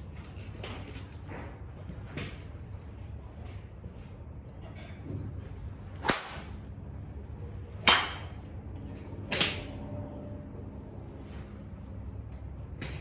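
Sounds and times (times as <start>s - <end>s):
golf club striking ball: 6.0s - 6.5s.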